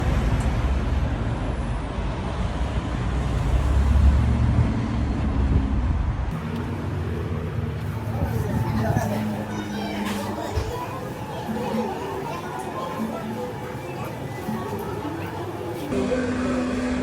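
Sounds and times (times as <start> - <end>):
motor vehicle rumble: 0.0 - 11.3.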